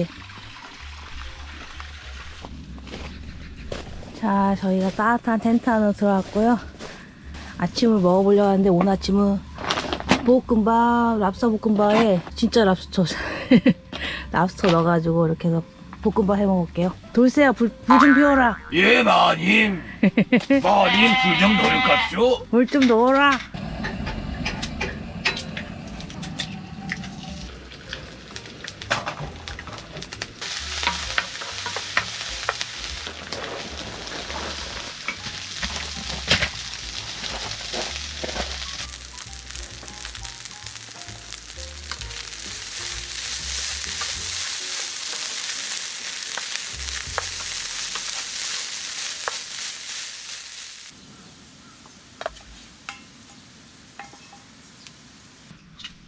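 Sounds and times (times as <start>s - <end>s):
rice sizzling in a hot pan: 20.2s - 22.4s, 23.6s - 55.5s.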